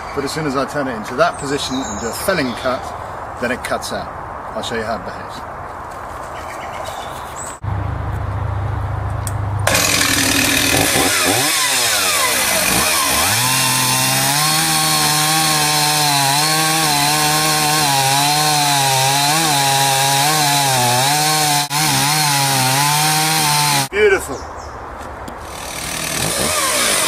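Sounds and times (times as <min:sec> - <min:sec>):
chainsaw idling and revving: 0:09.7 - 0:23.9, 0:25.4 - 0:27.0.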